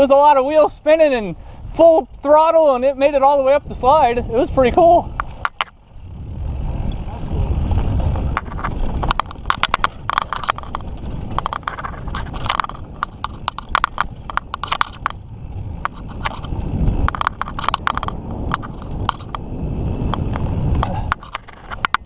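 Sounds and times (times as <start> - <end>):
low rumble: 3.4 - 21.6
bike frame and chain clicking: 4.4 - 22.0.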